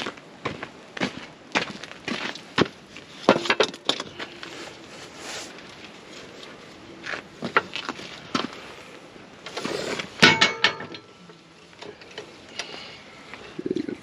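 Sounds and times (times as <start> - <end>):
wood and metal knocks: 10.2 - 11.1
loud ringing metallic clank: 10.2 - 11.2.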